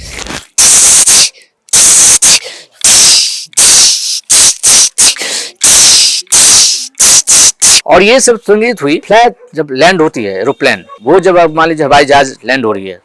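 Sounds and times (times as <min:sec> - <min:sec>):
man imitating bells with mouth: 0:00.6 - 0:07.9.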